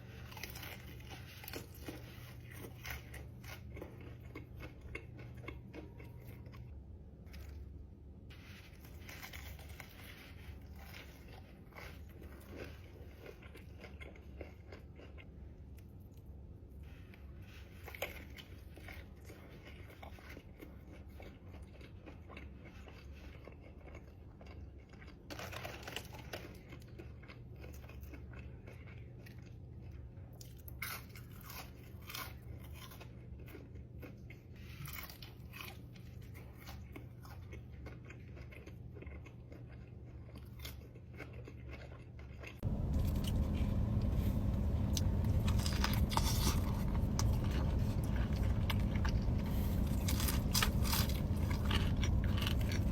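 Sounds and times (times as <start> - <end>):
person chewing food: 0.0 - 52.9
loud low rumble: 42.6 - 52.9
low steady hum: 42.6 - 52.9
sharp crunching clicks: 42.6 - 52.9.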